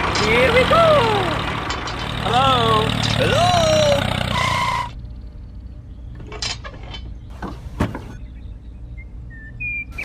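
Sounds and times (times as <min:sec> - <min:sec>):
low steady hum: 0:04.8 - 0:10.0.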